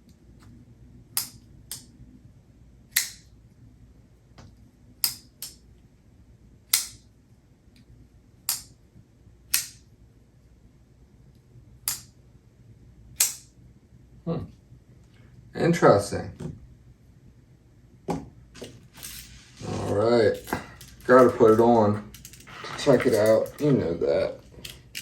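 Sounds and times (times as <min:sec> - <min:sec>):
pocket knife clicking open and shut: 0:05.0 - 0:05.6, 0:11.8 - 0:12.1, 0:13.2 - 0:13.5.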